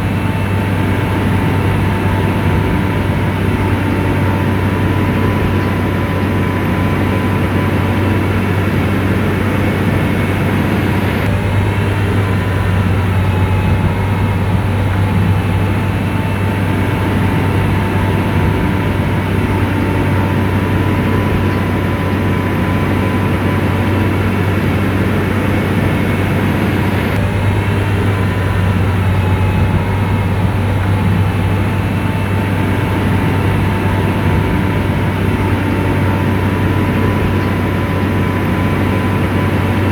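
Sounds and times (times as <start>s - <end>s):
bulldozer diesel engine drone: 0.0s - 39.9s.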